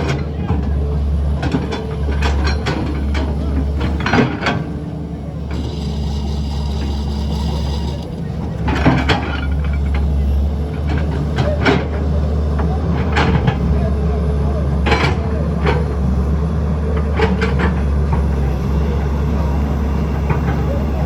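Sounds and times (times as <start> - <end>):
heavy diesel machinery running: 0.0 - 21.0
clanks and knocks: 1.4 - 4.8, 5.4 - 13.6, 17.0 - 18.4.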